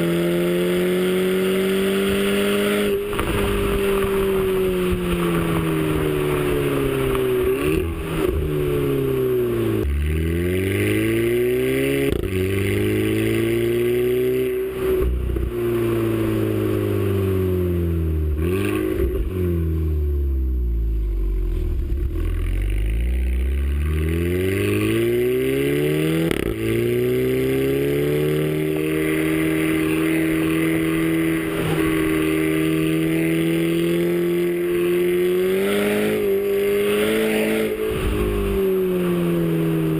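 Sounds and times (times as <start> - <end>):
car engine accelerating: 0.0 - 39.9
gear changes: 20.9 - 39.9.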